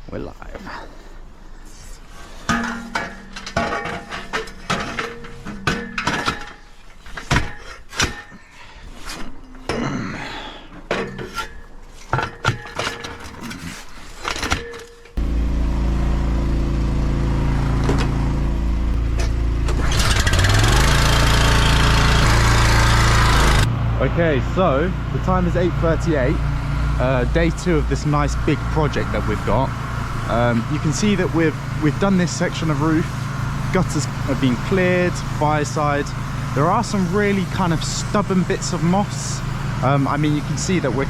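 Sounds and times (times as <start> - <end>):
engine running steadily: 2.1 - 6.7, 15.2 - 41.0
metal clanks of equipment: 2.2 - 15.2.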